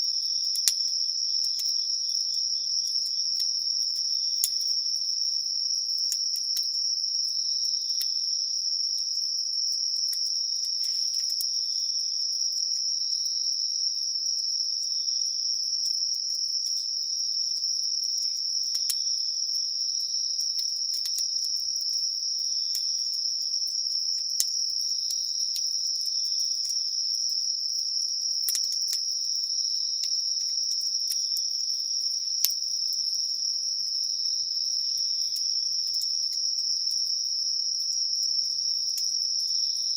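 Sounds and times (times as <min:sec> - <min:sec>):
insects trilling: 0:00.0 - 0:39.9
campfire crackling and popping: 0:05.9 - 0:06.7, 0:20.4 - 0:22.0, 0:28.2 - 0:29.2.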